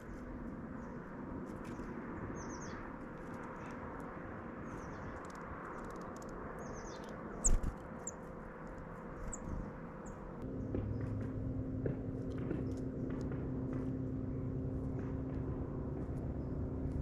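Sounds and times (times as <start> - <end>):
small birds chirping: 0.0 - 10.9.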